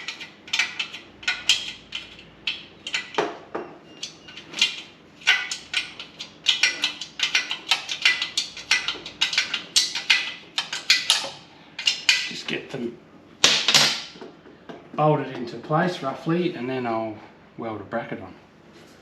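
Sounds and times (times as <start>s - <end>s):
hand tools clinking on metal: 0.0s - 3.3s, 3.9s - 12.5s.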